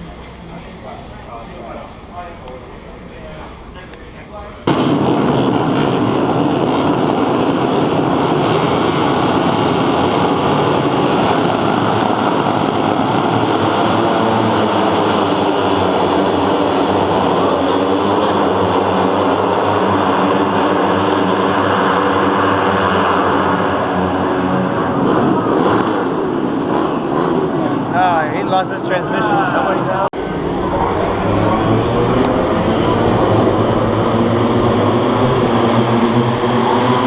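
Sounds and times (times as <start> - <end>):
racing motorcycle engines high revs: 4.6 - 29.0, 30.2 - 37.0.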